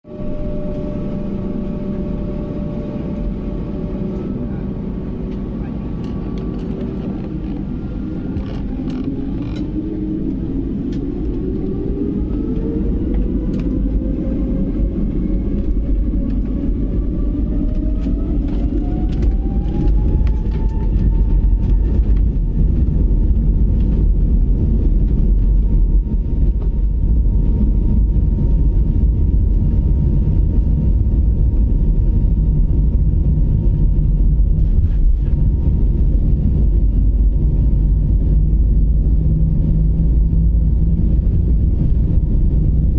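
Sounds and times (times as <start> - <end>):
deep engine rumble: 0.0 - 42.9
jet engine whine rising: 0.1 - 42.9
creaks and rattles: 5.2 - 10.2, 17.6 - 27.9.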